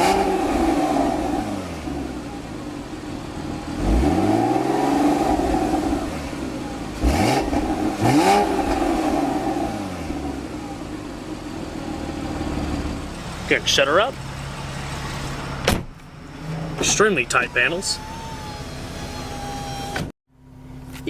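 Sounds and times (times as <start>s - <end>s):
sports car engine revving: 0.0s - 15.6s.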